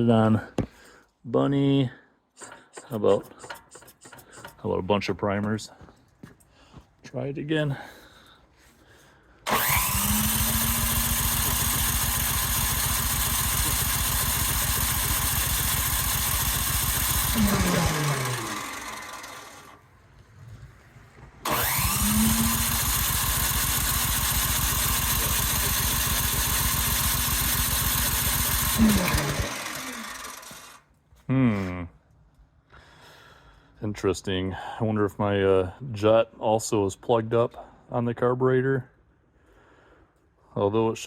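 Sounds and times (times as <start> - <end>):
engine cranking with electric starter: 2.4 - 4.6, 9.4 - 20.0, 21.4 - 30.9
starter winding down whine: 9.5 - 20.3, 21.2 - 30.8.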